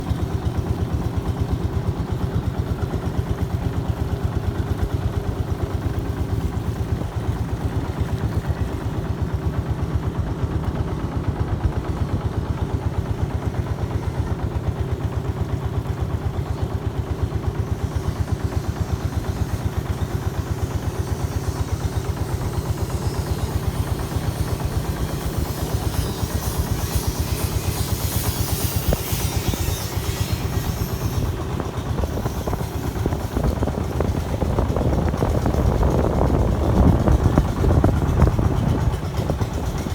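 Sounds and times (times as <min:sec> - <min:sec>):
boat engine running: 0:00.0 - 0:39.9
wind: 0:00.0 - 0:39.9.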